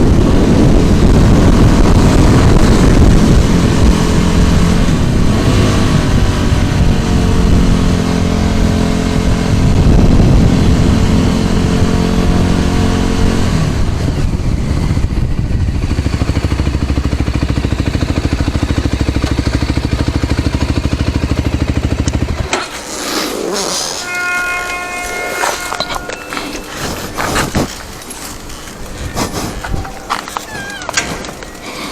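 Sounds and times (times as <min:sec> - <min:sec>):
scooter engine running: 0:00.0 - 0:31.9
clatter: 0:15.6 - 0:24.1
short high tones: 0:23.5 - 0:27.5.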